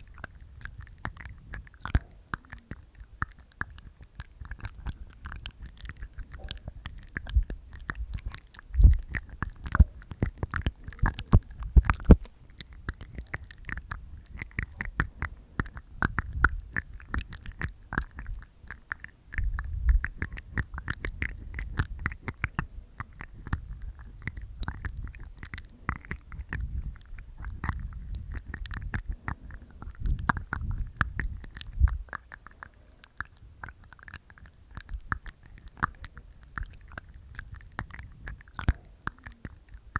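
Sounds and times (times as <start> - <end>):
wet tongue clicks and teeth sounds: 0.0 - 39.9.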